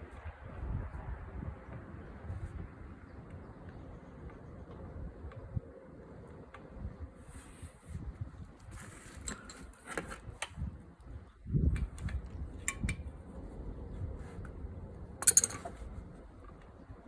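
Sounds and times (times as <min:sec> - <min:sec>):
metallic clicks and clinks: 0:15.2 - 0:15.8.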